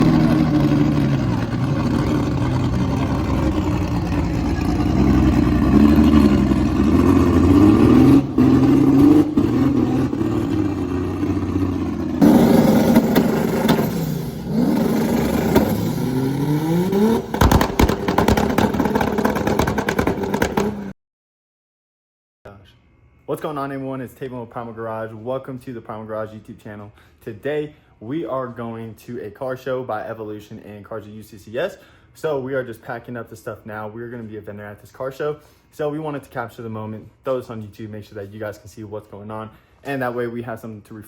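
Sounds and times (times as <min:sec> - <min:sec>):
car engines revving: 0:00.0 - 0:20.9
sharp cracks: 0:17.0 - 0:20.5.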